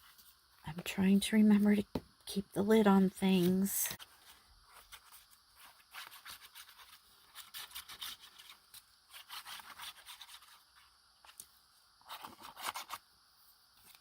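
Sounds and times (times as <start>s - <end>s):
paper rustling and scratching: 3.4s - 11.4s, 12.0s - 13.0s.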